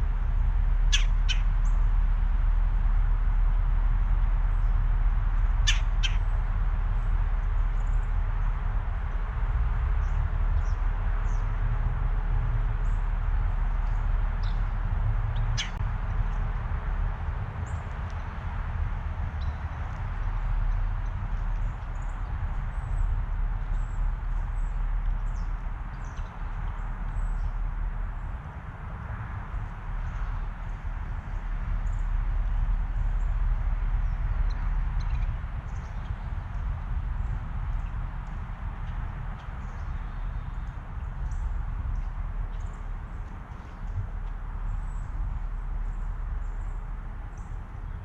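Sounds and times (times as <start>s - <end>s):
steady low rumble: 0.0s - 48.0s
small birds chirping: 0.8s - 1.9s, 5.4s - 6.4s, 13.8s - 15.8s, 17.6s - 28.4s, 29.6s - 48.0s
faint high bird chirps: 0.9s - 1.8s, 5.6s - 6.3s.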